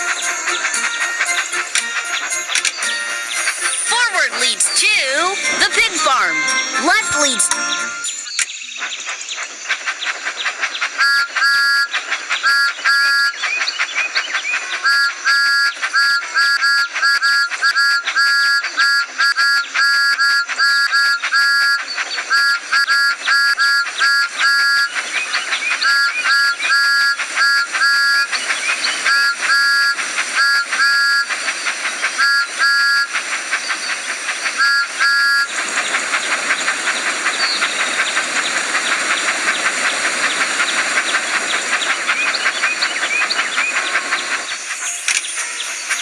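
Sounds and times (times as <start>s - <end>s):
steam hiss with chuffing: 0.0s - 5.9s, 7.8s - 46.0s
cartoon train whistle toots: 0.0s - 8.4s, 11.0s - 11.9s, 14.9s - 25.0s, 25.9s - 28.3s, 29.1s - 31.4s, 32.2s - 33.2s, 34.5s - 35.5s.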